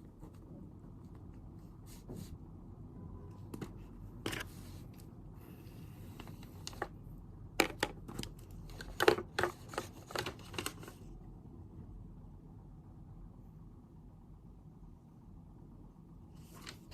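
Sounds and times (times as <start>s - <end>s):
low room hum: 0.0s - 16.9s
paper rustling: 16.4s - 16.9s.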